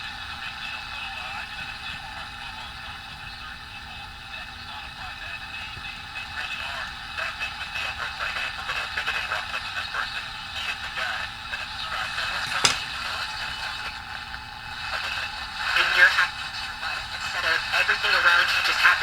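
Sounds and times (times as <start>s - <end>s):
sharp click: 12.4s - 13.0s
radio hiss: 15.0s - 19.0s.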